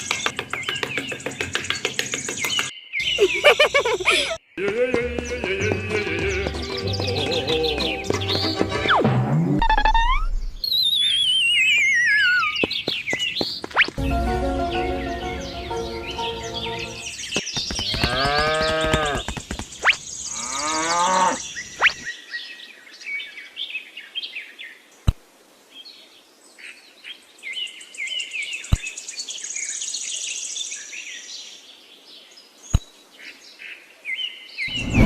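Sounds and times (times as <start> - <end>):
birds chirping: 0.0 - 8.9, 10.6 - 23.2
cow mooing: 18.0 - 19.2, 20.3 - 21.4.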